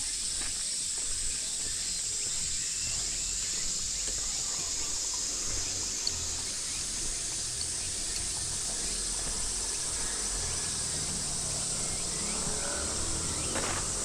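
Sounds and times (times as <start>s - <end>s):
cicadas droning: 0.0s - 14.0s.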